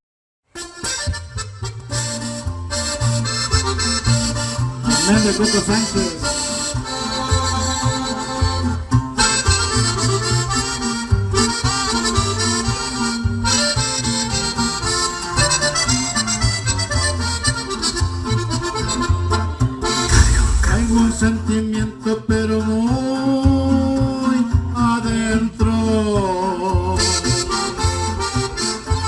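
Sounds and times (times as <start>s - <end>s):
guitar: 0.5s - 29.0s
accordion melody: 0.6s - 21.7s, 26.9s - 29.0s
bass line: 19.8s - 21.9s.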